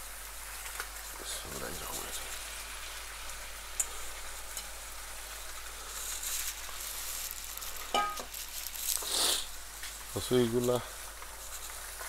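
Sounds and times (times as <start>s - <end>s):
stems sizzling in a wok: 0.0s - 12.0s.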